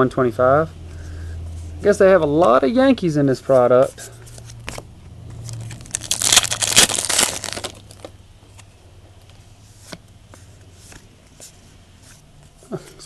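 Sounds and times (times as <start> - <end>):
wrapper crinkling and tearing: 5.4 - 8.2.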